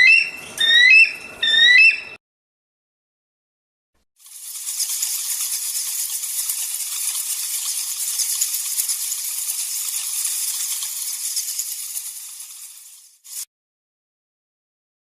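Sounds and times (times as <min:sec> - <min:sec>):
rattlesnake tail rattling: 0:04.2 - 0:13.5.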